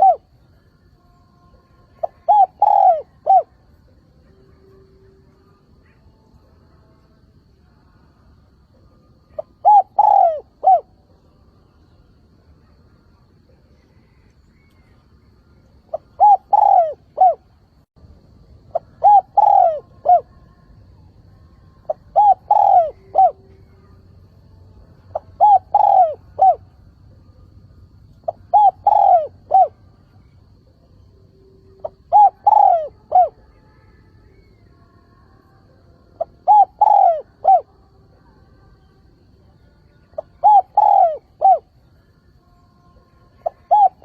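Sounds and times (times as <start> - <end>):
dove cooing: 0.0 - 0.4, 1.9 - 3.7, 9.2 - 11.2, 15.9 - 17.7, 18.7 - 20.5, 21.8 - 24.0, 25.1 - 27.4, 28.2 - 30.8, 31.4 - 33.5, 36.2 - 37.7, 40.1 - 41.8, 43.3 - 44.0.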